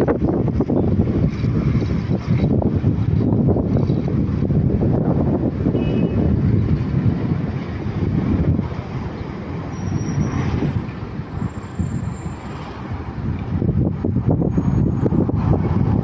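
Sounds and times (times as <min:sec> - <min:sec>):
jet engines rumbling: 0:05.1 - 0:16.0.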